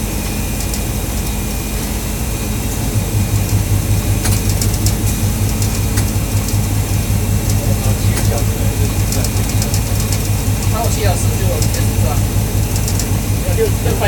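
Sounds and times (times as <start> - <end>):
train engine idling: 0.0 - 14.0
faint clicks: 12.7 - 13.2.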